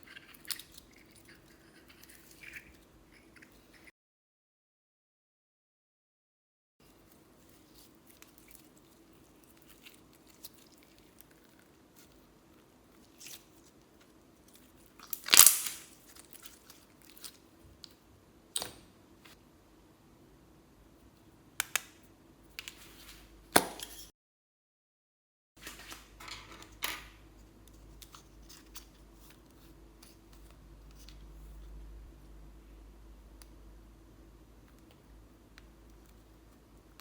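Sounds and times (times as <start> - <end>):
sticky slime crackles and pops: 15.0 - 17.3.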